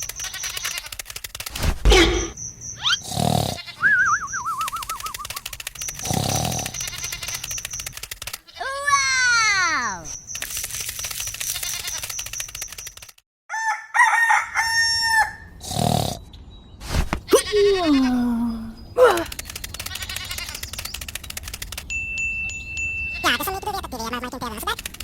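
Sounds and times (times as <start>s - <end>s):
farm animal calls: 0.0s - 1.0s, 2.1s - 7.7s
rooster crowing: 13.5s - 15.6s.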